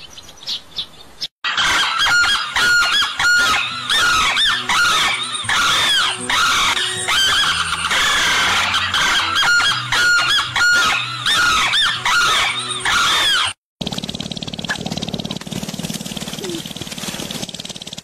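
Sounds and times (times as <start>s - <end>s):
small birds chirping: 0.0s - 1.3s.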